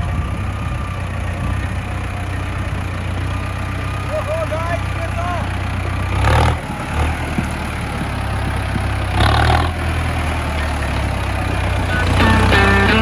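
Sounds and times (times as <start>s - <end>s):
tractor diesel engine running: 0.0s - 13.0s
background music: 11.8s - 13.0s.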